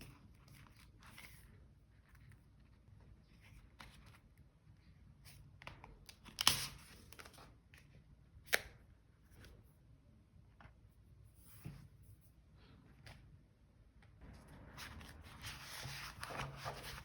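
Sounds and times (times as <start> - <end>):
paper rustling: 14.3 - 17.0.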